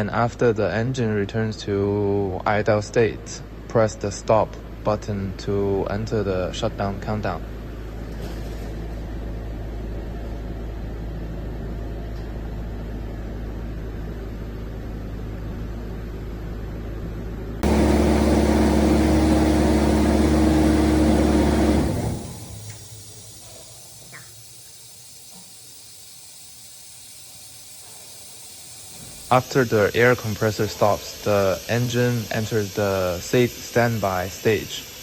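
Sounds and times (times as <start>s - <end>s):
diesel air compressor engine: 17.6s - 34.9s.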